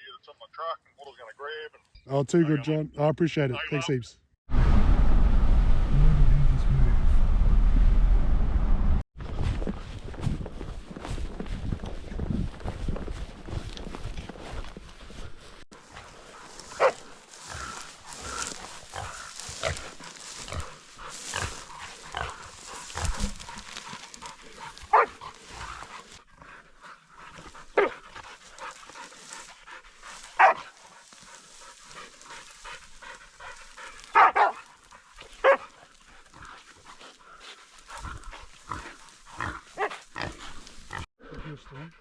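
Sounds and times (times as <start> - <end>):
rustling movement: 9.2 - 41.1
dogs barking: 16.2 - 26.2, 27.6 - 29.4, 30.0 - 36.0, 38.0 - 40.1.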